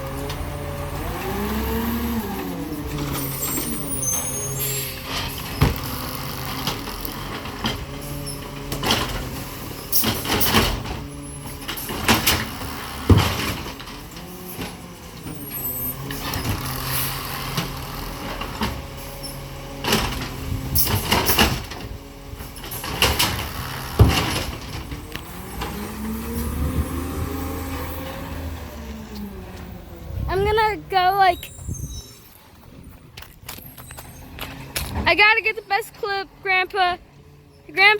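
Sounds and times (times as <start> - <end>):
garbage truck engine running: 0.0 - 37.9
metal clanks and bangs: 6.6 - 14.8, 19.8 - 25.9.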